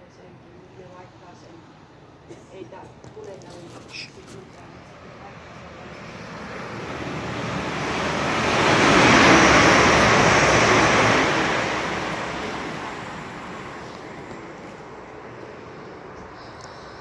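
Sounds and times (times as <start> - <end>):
fast train rushing past: 3.9 - 17.0.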